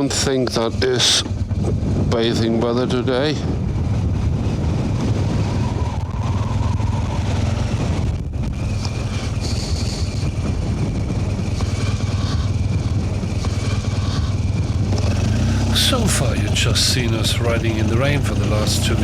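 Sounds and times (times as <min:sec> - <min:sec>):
wind on microphone: 0:00.0 - 0:15.5
motorcycle engine running: 0:00.0 - 0:19.0.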